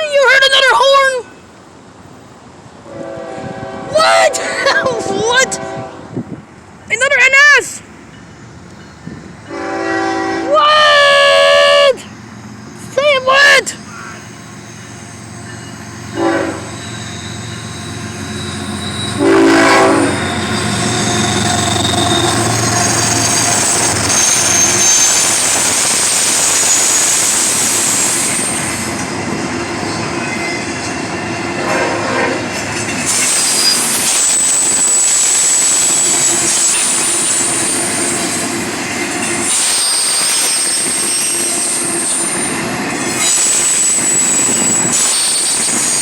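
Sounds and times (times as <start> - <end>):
freight train rumbling on rails: 0.0 - 46.0
train wheel squeals: 13.7 - 31.4, 32.4 - 46.0.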